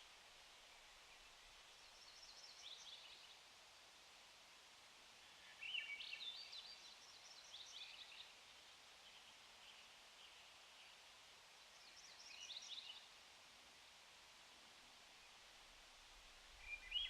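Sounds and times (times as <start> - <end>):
songbird chirping: 0.0 - 3.4, 5.2 - 8.4, 9.0 - 13.2, 15.0 - 17.0
faint steady hiss: 0.0 - 17.0.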